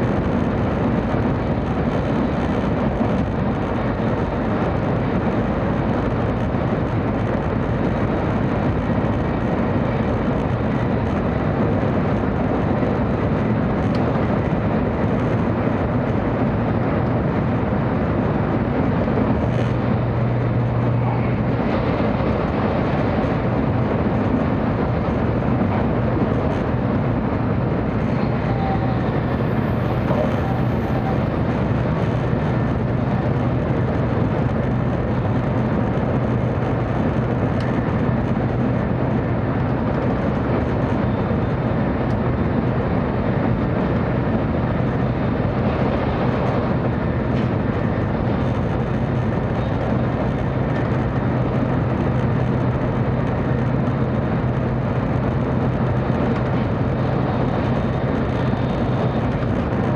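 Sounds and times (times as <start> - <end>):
constant low hum: 0.0 - 59.9
train wheels and track rumble: 0.0 - 59.9.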